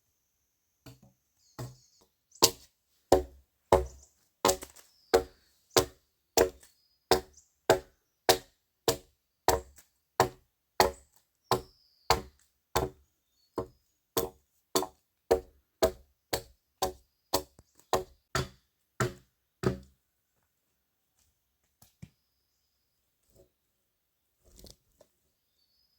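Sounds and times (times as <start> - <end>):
chopping wood with hand tool: 0.9 - 13.0, 13.6 - 19.9.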